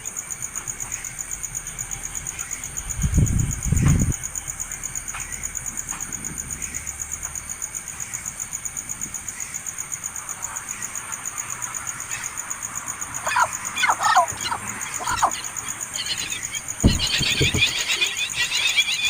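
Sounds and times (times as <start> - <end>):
insects trilling: 0.0 - 19.0
low thumps: 16.8 - 18.0.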